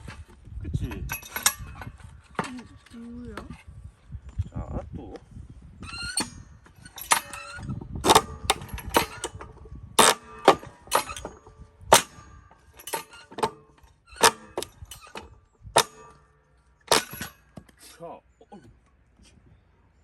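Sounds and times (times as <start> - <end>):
metallic strikes splitting wood: 6.1 - 17.8.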